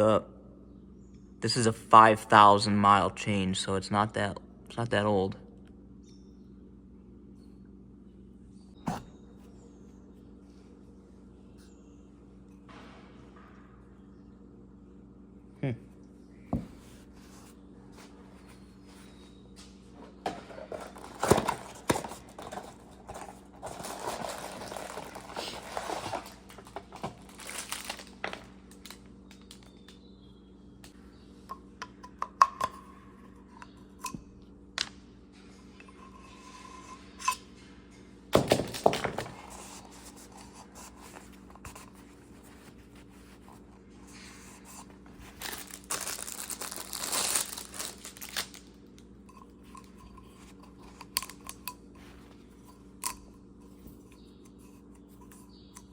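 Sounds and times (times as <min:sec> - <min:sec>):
packaging crinkling and tearing: 0:20.7 - 0:29.9, 0:45.1 - 0:48.8.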